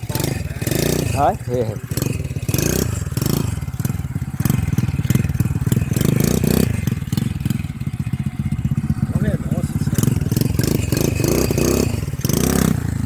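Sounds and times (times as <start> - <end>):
small petrol engine revving: 0.0 - 13.0
clatter from toy quad bike: 9.8 - 13.0.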